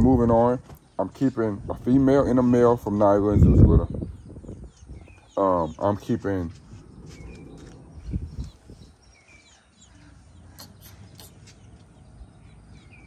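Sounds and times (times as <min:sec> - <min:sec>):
faint birds chirping: 0:00.0 - 0:13.0
low rumble: 0:06.5 - 0:09.1.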